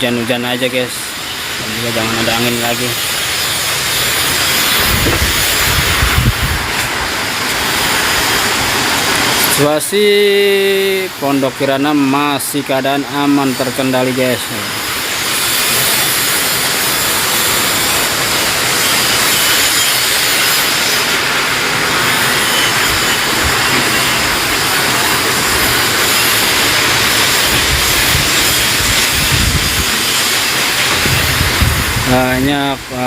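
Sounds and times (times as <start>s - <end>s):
wind and rain hissing: 0.0s - 33.0s
wind gusts rumbling on microphone: 4.6s - 9.3s, 22.8s - 33.0s.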